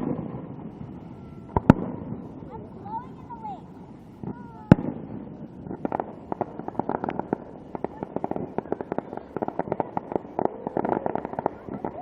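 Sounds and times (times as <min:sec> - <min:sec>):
crackling firework pops: 0:00.0 - 0:12.0.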